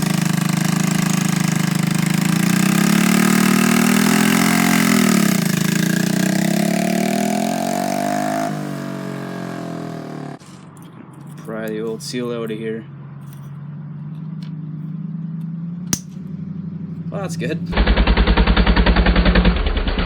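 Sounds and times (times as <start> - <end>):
mini bike engine revving: 0.0 - 10.5, 16.4 - 20.0.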